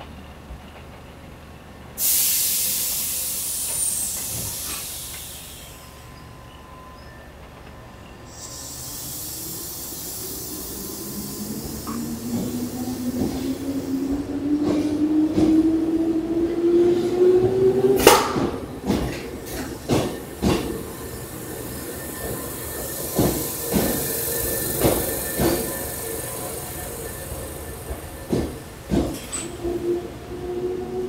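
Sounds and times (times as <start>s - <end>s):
train wheels clacking over rail joints: 17.0s - 29.8s.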